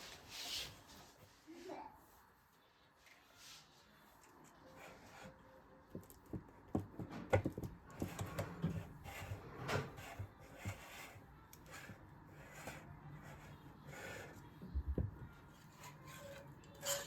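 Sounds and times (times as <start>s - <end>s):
kitchen items knocking and clicking: 5.9s - 10.8s.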